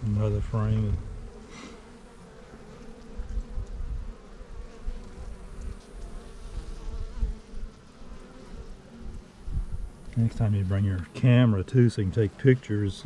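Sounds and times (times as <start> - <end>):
low rumbling on microphone: 0.0 - 1.4, 9.0 - 10.6
honeybees buzzing: 0.0 - 13.0.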